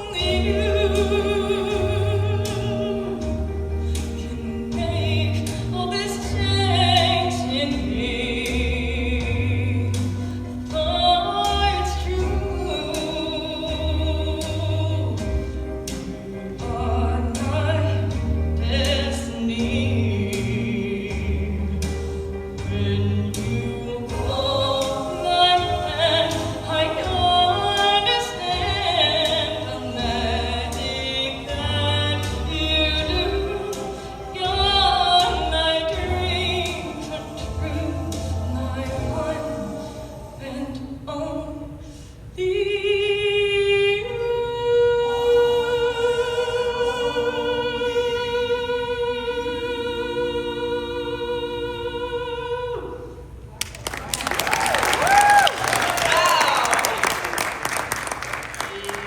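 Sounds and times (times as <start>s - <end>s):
operatic singing voice: 0.0s - 41.8s.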